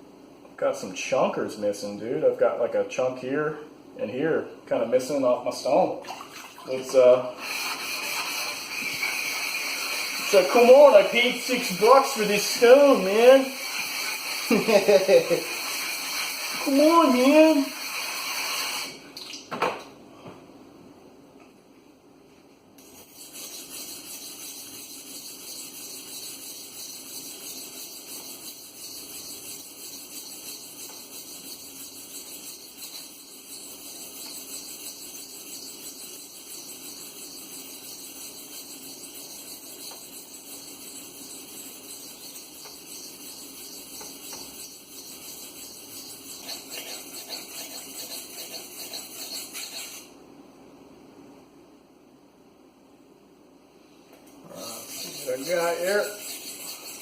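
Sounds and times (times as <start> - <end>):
knife scraping on sharpening stone: 22.8 - 50.1, 54.5 - 57.0.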